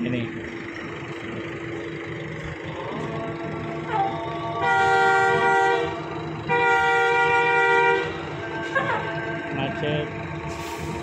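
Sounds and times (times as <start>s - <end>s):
bus air horn chord blasts: 3.9s - 9.6s.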